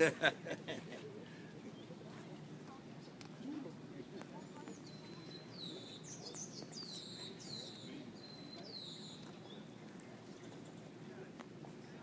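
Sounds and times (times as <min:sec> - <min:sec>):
murmur of distant voices: 0:00.0 - 0:12.0
songbird chirping: 0:04.1 - 0:11.0.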